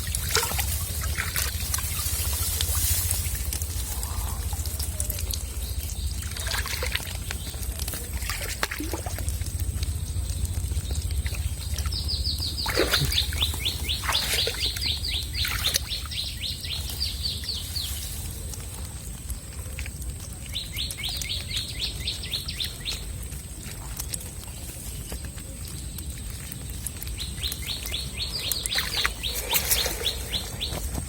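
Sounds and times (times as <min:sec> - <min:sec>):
water splashing and trickling: 0:00.0 - 0:31.0
bird trilling: 0:11.3 - 0:16.8.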